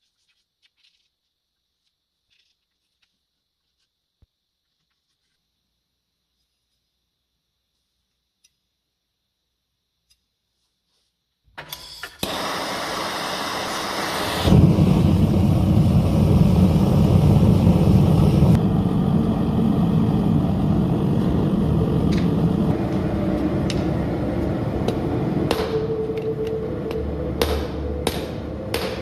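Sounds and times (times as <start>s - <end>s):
steady low roar: 14.5s - 29.0s
hammer blows on an anvil: 24.9s - 29.0s.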